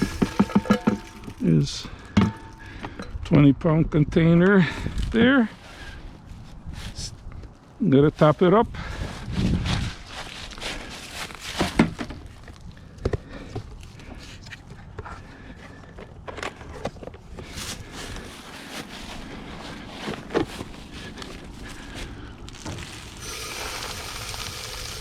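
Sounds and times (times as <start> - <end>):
seed rustling: 0.0 - 2.0, 21.0 - 25.0.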